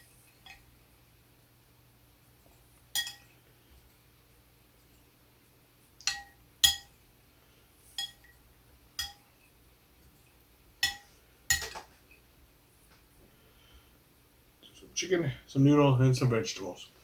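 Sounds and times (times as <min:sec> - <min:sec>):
spoon clinking against bowl: 0:03.0 - 0:03.3, 0:06.0 - 0:06.9, 0:08.0 - 0:08.4, 0:09.0 - 0:09.3.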